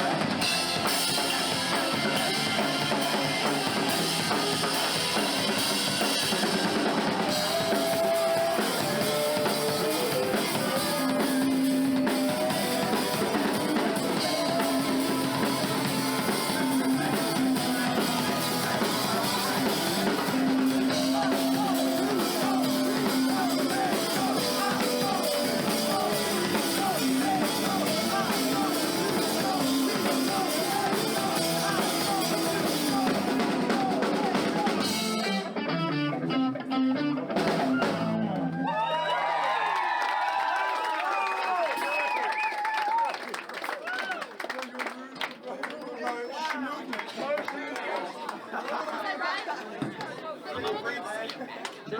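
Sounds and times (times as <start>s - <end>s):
rock band playing live: 0.0s - 38.7s.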